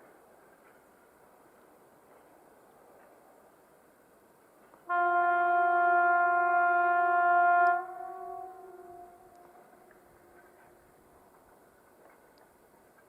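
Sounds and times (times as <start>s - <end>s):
locomotive horn blast: 4.9s - 10.0s.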